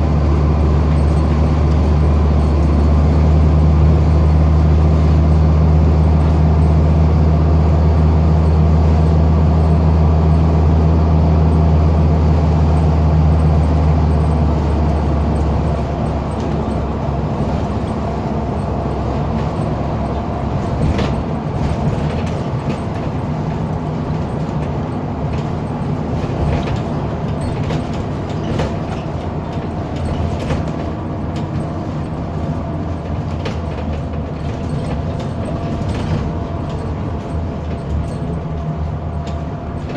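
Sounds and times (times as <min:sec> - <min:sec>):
bus engine droning: 0:00.0 - 0:39.9
road noise: 0:00.0 - 0:39.9
rattles: 0:13.3 - 0:39.9.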